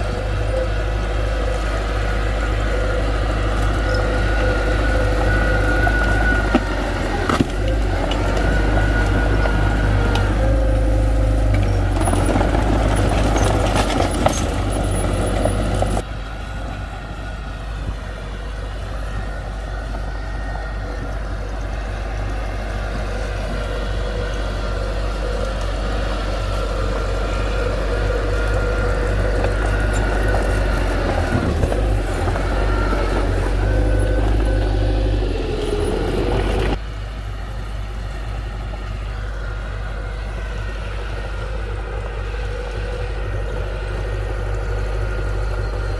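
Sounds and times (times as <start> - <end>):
construction machinery engine hum: 0.0 - 45.9.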